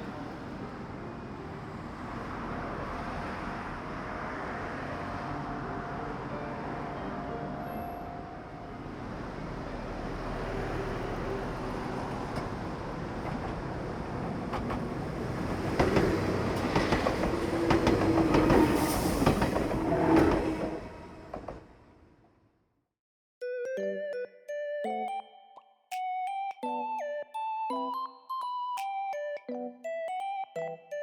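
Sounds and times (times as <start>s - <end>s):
train rumbling on rails: 0.0s - 22.2s
wheels clattering over rail joints: 11.1s - 21.8s.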